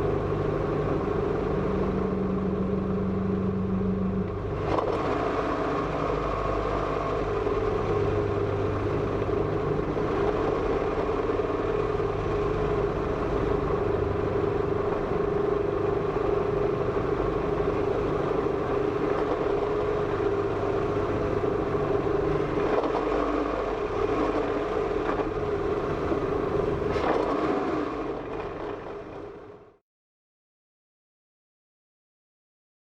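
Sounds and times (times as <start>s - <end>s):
steady droning hum: 0.0s - 4.3s, 7.7s - 11.0s, 11.9s - 22.8s, 25.3s - 27.0s
car engine and road noise: 0.0s - 29.7s.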